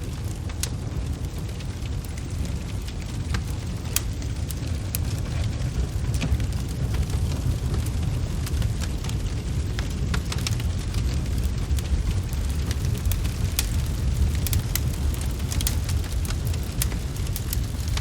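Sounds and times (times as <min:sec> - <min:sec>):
fire crackling and popping: 0:00.0 - 0:18.0.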